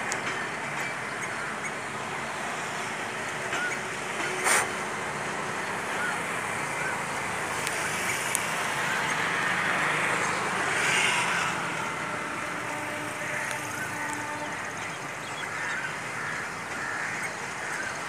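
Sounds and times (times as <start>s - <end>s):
steady vehicle noise: 0.0s - 18.0s
short sharp hiss: 4.4s - 4.8s.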